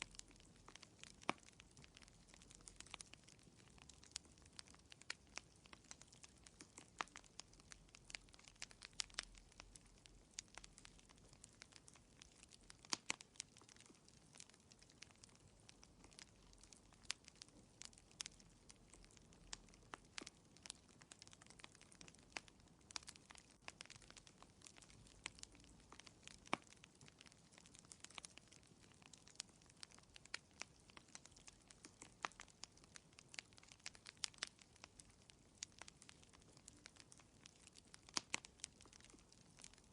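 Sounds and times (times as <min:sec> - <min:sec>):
faint fire hiss: 0:00.0 - 0:39.9
wood fire pops and snaps: 0:00.0 - 0:39.9.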